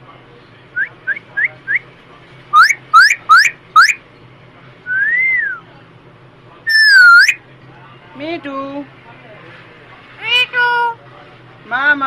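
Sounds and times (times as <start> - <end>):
bird whistling: 2.6 - 4.0, 6.7 - 7.4.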